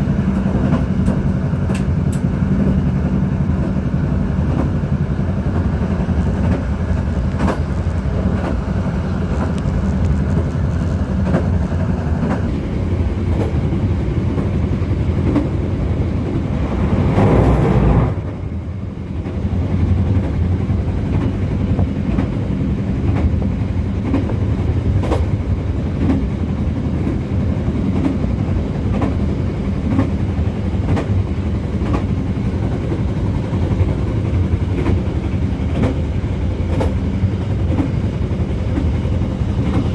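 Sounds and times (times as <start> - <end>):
train carriage rumble: 0.0 - 39.9
loud rushing noise: 16.1 - 18.6.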